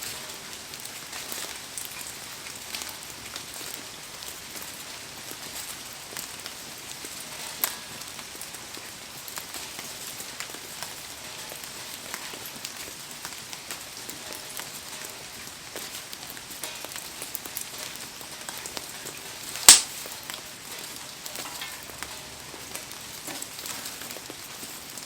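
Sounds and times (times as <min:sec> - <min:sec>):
sharp snap: 0:19.7 - 0:19.9.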